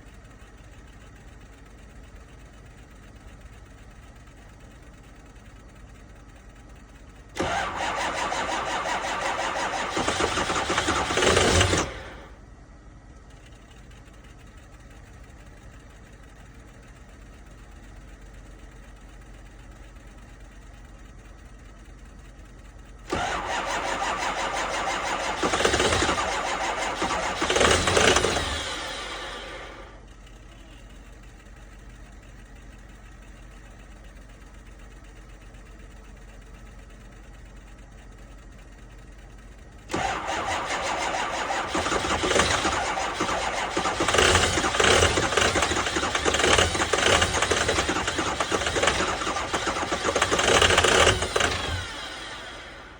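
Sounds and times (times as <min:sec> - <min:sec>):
diesel engine cranking on starter: 0:06.6 - 0:12.5, 0:22.5 - 0:32.9, 0:36.2 - 0:52.9.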